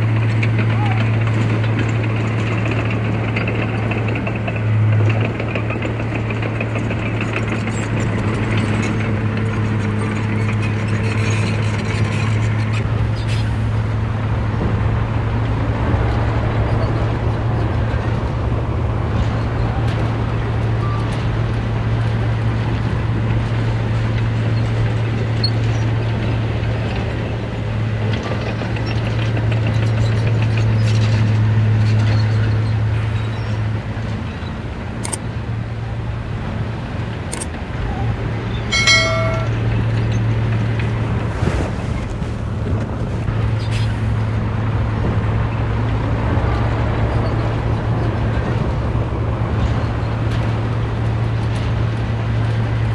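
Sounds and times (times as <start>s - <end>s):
heavy diesel engine droning: 0.0s - 52.9s
brief high-pitched tone: 38.7s - 39.6s.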